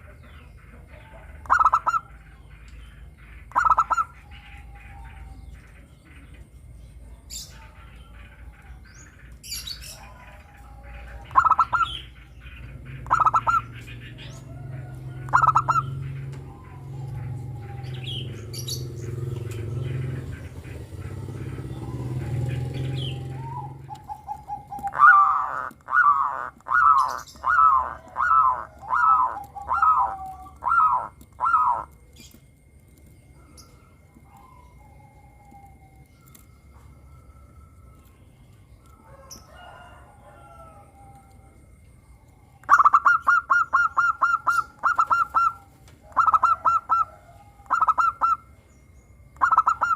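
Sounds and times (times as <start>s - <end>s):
doves cooing: 0.0s - 49.9s
small birds chirping: 0.0s - 49.9s.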